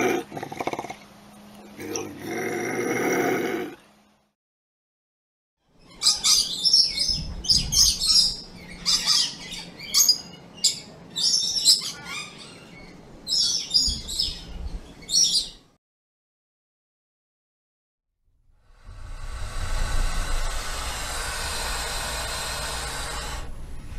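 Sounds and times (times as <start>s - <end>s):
lorikeet high-pitched calls: 5.8s - 15.6s.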